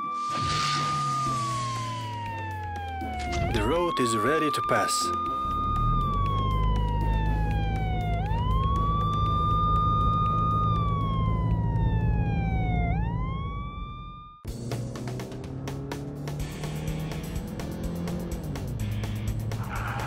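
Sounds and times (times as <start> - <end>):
police siren: 0.0 - 14.5, 19.2 - 20.0.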